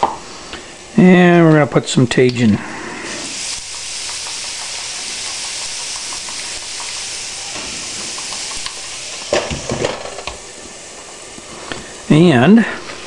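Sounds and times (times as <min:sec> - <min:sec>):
vegetables sizzling in a skillet: 0:03.0 - 0:12.0
utensil knocking: 0:03.3 - 0:10.4.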